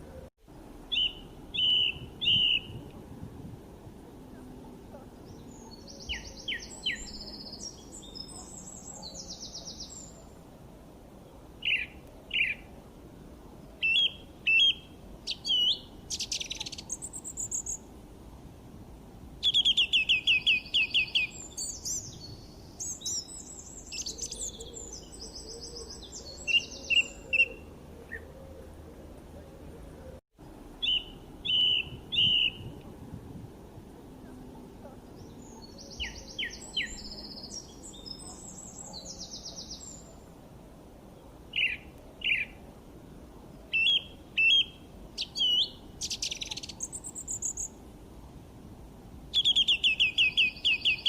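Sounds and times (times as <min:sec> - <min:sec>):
faint background hiss: 0:00.0 - 0:51.0
songbirds chirping and singing: 0:00.9 - 0:02.8, 0:04.3 - 0:10.4, 0:13.5 - 0:17.8, 0:19.4 - 0:30.2, 0:34.1 - 0:40.2, 0:43.7 - 0:47.7.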